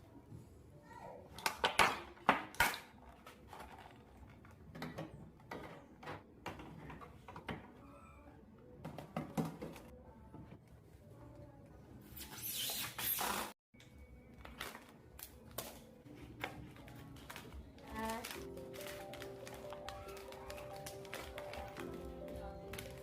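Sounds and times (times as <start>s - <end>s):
objects being handled: 2.6s - 7.7s, 14.3s - 23.0s.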